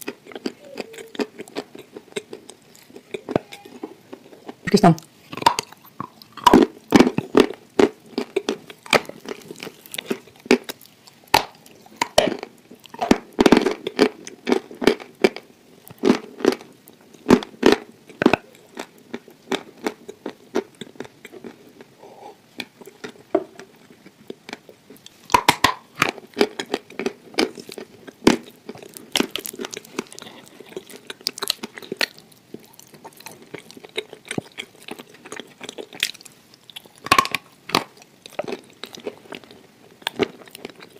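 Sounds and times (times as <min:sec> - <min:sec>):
mouth sounds: 0:00.0 - 0:02.3, 0:02.9 - 0:07.3, 0:22.0 - 0:22.5
person chewing crunchy food: 0:00.0 - 0:40.9.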